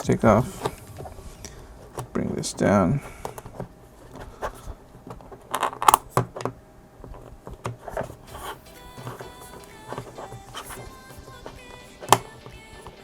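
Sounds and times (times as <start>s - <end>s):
plastic parts scraping: 0.0s - 13.0s
plastic parts clicking: 3.1s - 10.9s, 12.0s - 13.0s.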